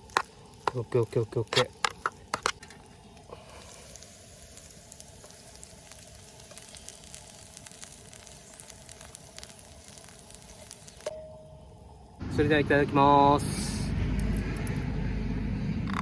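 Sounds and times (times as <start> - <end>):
rice sizzling in a pan: 0.0 - 11.1.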